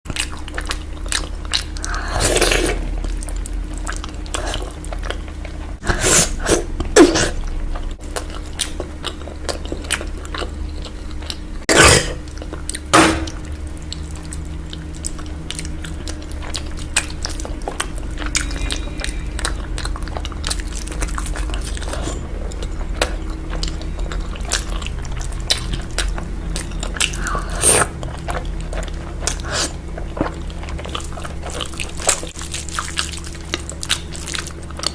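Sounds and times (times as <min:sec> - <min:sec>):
bites crunching: 0:00.1 - 0:34.9
person chewing food: 0:00.1 - 0:34.9.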